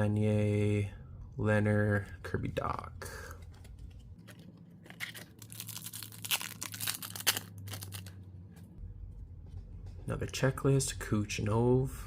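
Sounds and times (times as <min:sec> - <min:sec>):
card pack wrapper tearing and crinkling: 0:04.2 - 0:08.2.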